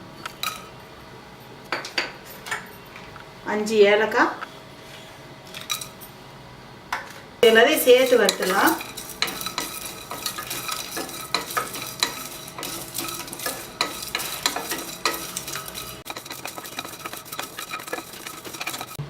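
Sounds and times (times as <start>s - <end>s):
light sizzle: 0.0s - 3.2s, 5.5s - 6.2s, 7.0s - 19.0s
spatula scraping a pan: 7.4s - 19.0s.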